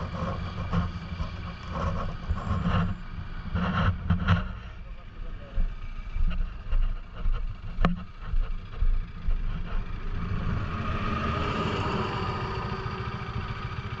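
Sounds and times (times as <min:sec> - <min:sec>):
vehicle engine idling: 0:00.0 - 0:14.0
vehicle passing: 0:09.0 - 0:13.9.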